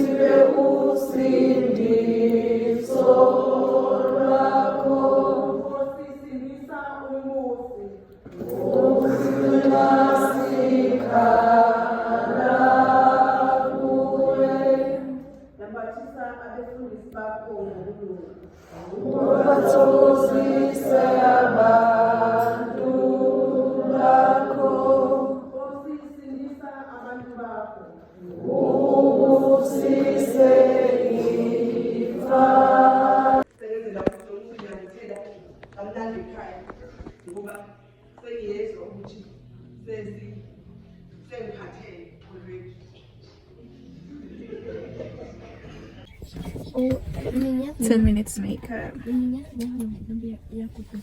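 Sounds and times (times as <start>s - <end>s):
choir singing a hymn: 0.0s - 6.2s, 8.3s - 15.3s, 18.7s - 25.8s, 28.2s - 33.5s.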